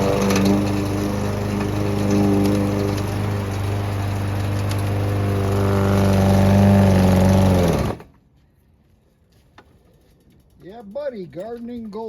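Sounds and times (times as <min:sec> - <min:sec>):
garden shredder running: 0:00.0 - 0:08.1.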